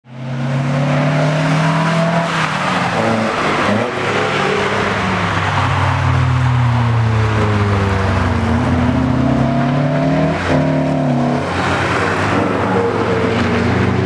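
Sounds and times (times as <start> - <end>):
car engine pulling hard: 0.2 - 14.0.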